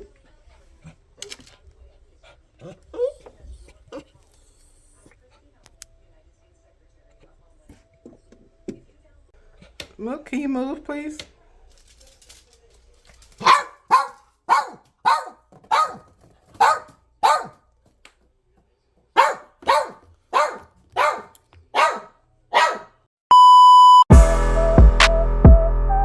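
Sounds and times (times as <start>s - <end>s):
dog barking: 13.4s - 17.7s, 19.1s - 23.1s
steady electronic beep: 23.3s - 25.0s
music: 24.1s - 26.0s.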